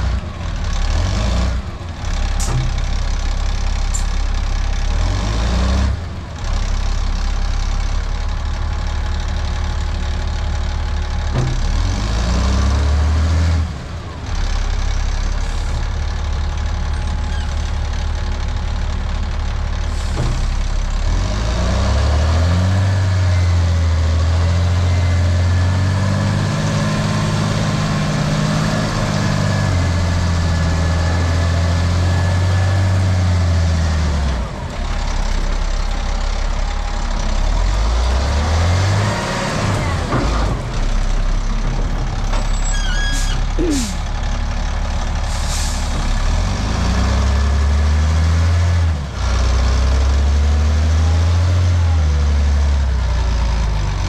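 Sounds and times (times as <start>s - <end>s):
truck engine under load: 0.0s - 54.0s.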